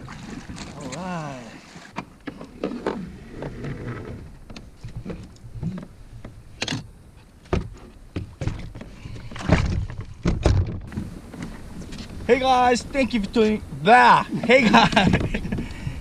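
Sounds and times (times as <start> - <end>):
gear knocking and thumping on kayak: 1.9 - 12.3, 14.3 - 15.9.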